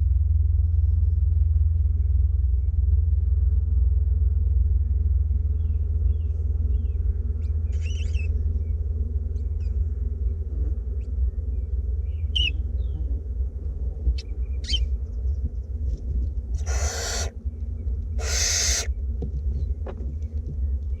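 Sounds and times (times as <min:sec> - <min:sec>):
steady low hum: 0:00.0 - 0:21.0
owlets hissing calls: 0:16.6 - 0:17.3, 0:18.2 - 0:18.9.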